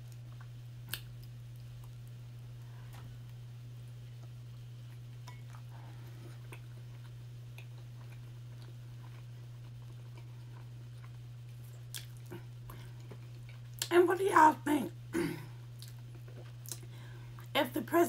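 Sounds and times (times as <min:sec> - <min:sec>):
person chewing: 0:00.0 - 0:03.4, 0:04.2 - 0:13.9, 0:15.6 - 0:17.5
steady low hum: 0:00.0 - 0:18.0
wet mouth clicks: 0:00.9 - 0:01.3, 0:11.8 - 0:12.3.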